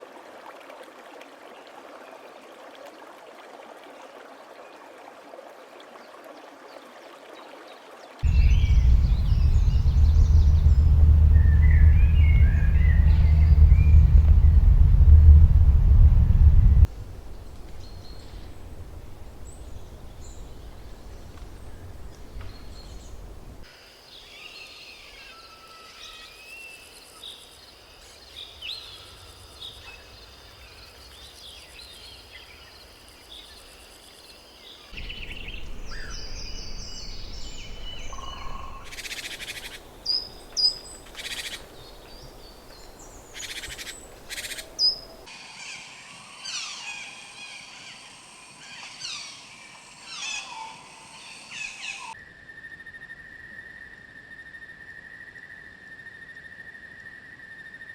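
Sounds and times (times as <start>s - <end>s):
birds chirping: 8.2s - 23.7s, 35.0s - 45.3s
low outdoor rumble: 8.2s - 23.7s, 35.0s - 45.3s.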